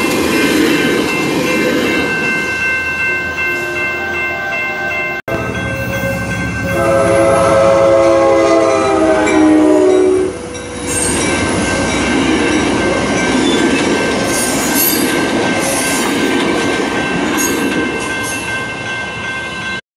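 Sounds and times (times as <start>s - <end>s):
train passing at speed: 0.0s - 19.8s
train horn chord: 3.5s - 11.2s.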